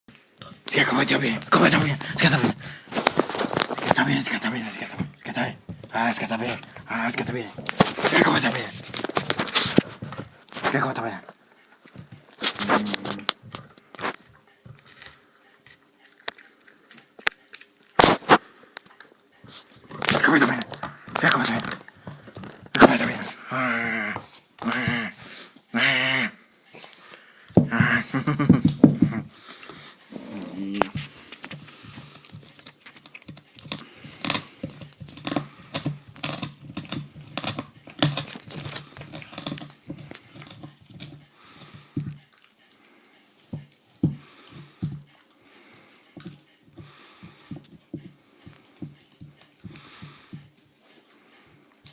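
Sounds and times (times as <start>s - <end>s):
dog gnawing on bone: 0.1s - 25.4s, 28.6s - 51.9s
loud bone crunches: 0.2s - 5.2s, 5.8s - 10.8s, 14.8s - 19.0s, 19.6s - 25.3s, 29.4s - 42.2s.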